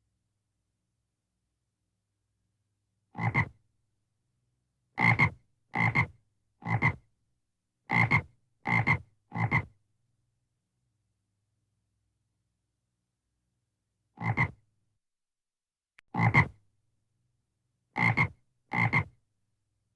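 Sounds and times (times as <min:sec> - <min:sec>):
frog croaking: 0:03.2 - 0:03.5, 0:14.2 - 0:14.6, 0:18.0 - 0:19.1.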